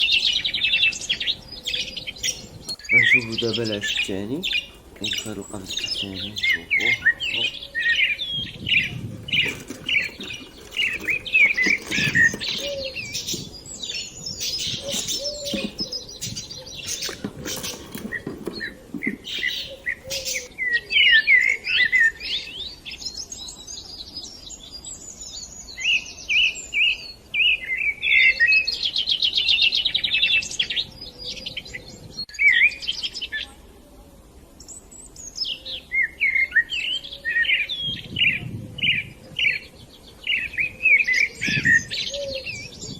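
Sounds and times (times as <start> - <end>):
budgerigars chirping and chattering: 0.1 - 20.5.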